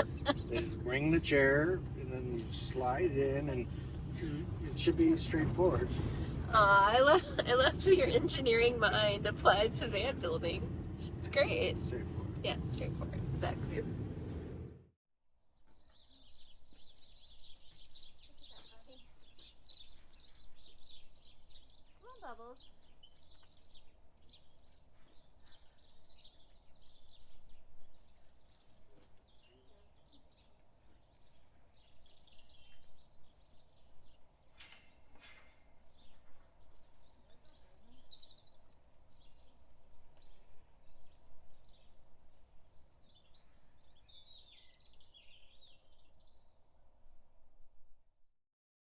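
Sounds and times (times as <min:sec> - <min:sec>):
small birds chirping: 0:00.0 - 0:13.8, 0:15.4 - 0:47.7
faint low rumble: 0:00.0 - 0:14.9.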